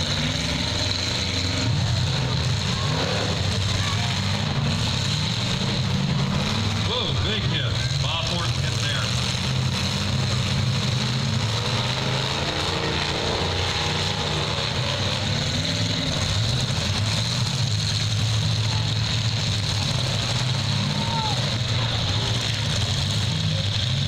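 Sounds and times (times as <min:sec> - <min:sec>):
car engines droning and revving: 0:00.0 - 0:24.0.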